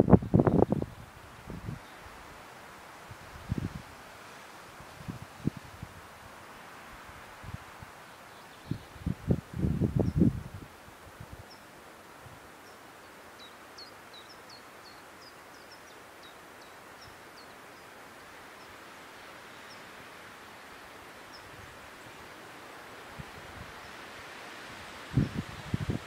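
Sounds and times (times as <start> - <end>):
soft outdoor hiss: 0.0 - 26.0.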